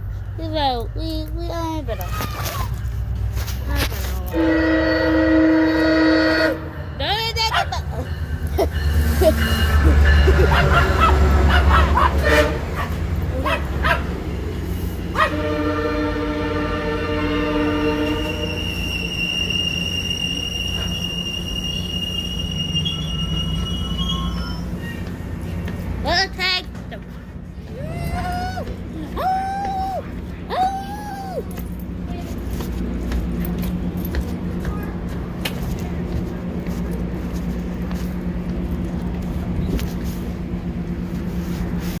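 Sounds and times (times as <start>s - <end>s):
diesel locomotive engine drone: 0.0s - 42.0s
train low rumble: 0.0s - 42.0s
train wheels squealing: 18.1s - 25.6s.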